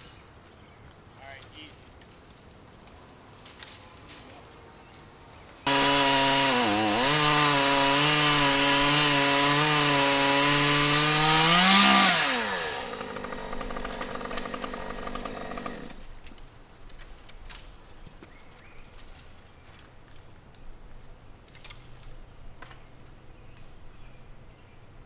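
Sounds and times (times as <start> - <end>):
two-stroke chainsaw revving: 5.7 - 16.0.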